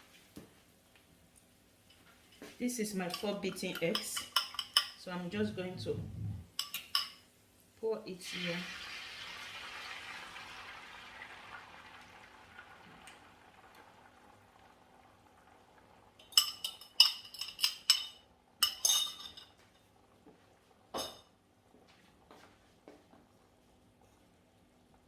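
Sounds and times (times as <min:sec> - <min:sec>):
utensil clinking on cookware: 0:01.9 - 0:05.8, 0:06.6 - 0:07.2, 0:16.2 - 0:19.6
eggs sizzling in frying pan: 0:06.7 - 0:22.3.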